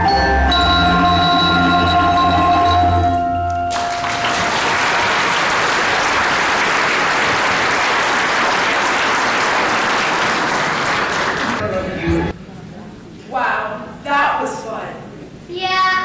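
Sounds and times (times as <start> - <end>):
ringing mallet percussion note: 0.0 - 5.1
audience applauding: 3.1 - 11.8.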